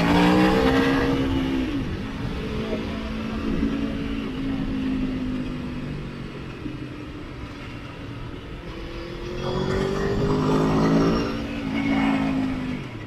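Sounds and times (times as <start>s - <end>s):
sport motorcycle engine revving: 0.0s - 1.9s.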